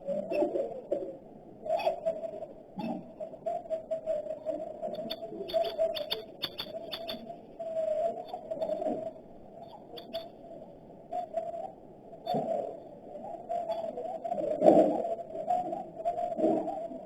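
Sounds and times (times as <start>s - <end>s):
bird cooing: 4.9s - 7.3s
birds chirping: 5.0s - 7.4s, 9.6s - 10.4s.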